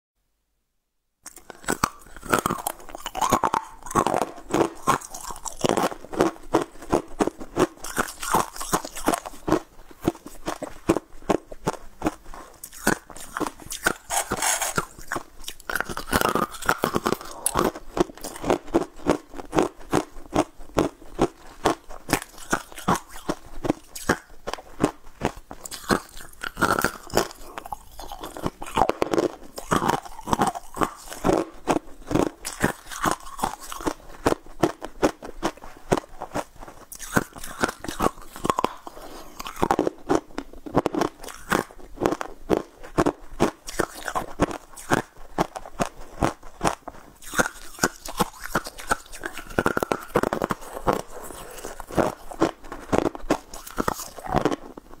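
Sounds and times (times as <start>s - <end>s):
crunchy candy chewing: 1.2s - 55.0s.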